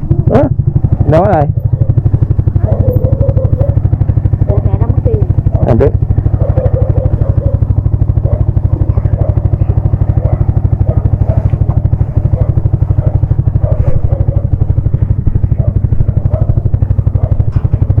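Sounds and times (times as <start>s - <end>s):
motorcycle engine running at low revs: 0.0s - 18.0s.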